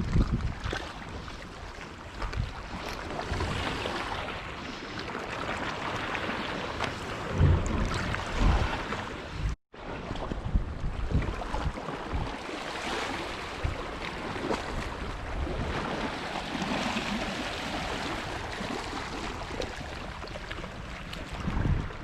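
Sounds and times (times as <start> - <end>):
wind buffeting microphone: 0.0 - 1.4, 5.8 - 22.0
water lapping against shore: 0.0 - 22.0.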